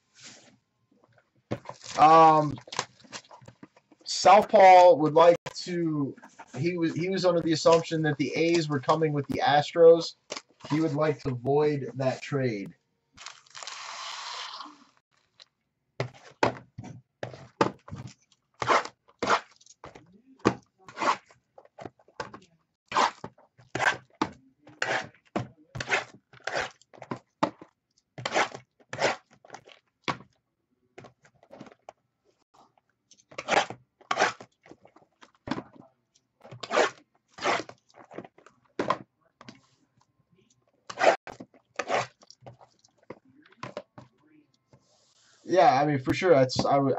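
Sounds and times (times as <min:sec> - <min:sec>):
card packs clicking and crunching: 0:01.6 - 0:03.7, 0:13.2 - 0:13.8.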